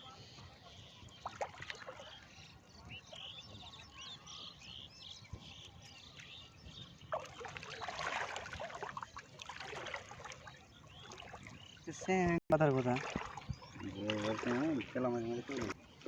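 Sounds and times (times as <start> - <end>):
small birds chirping: 0.0 - 16.0
crackling splashy noise: 7.1 - 10.5.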